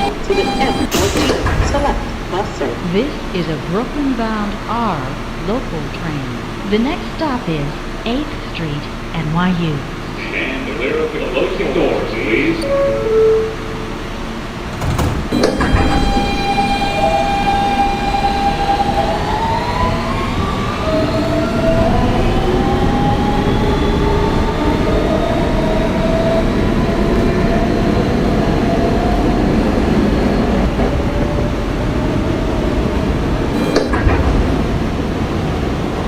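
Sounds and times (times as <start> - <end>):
wheels rumbling on rail: 9.8 - 36.0
train motor whining: 10.3 - 36.0.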